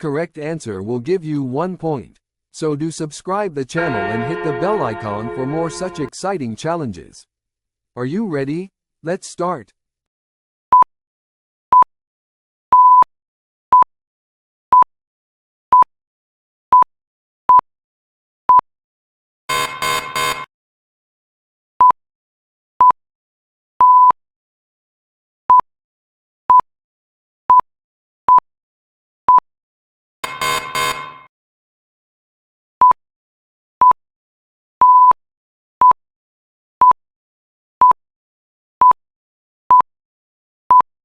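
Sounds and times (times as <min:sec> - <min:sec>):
countdown timer short beeps: 0:03.8 - 0:06.1, 0:34.8 - 0:35.1
harsh buzzer pulses: 0:03.8 - 0:06.1, 0:19.5 - 0:20.5, 0:30.2 - 0:31.3.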